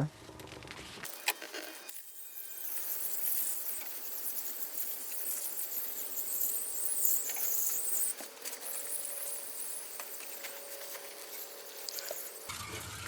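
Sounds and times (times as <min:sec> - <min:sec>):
water spray hissing: 0:02.4 - 0:12.5.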